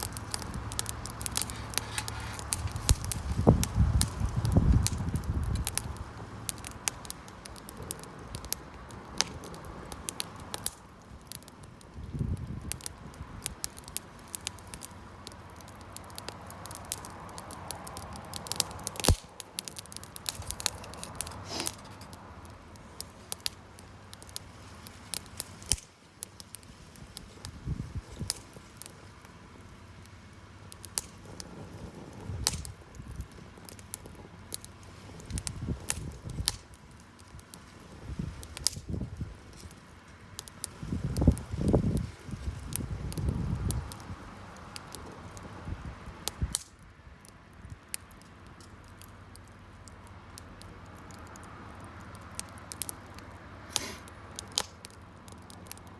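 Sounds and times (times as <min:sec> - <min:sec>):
campfire crackling and popping: 0:00.0 - 0:55.9
soft hiss of burning: 0:00.0 - 0:55.9.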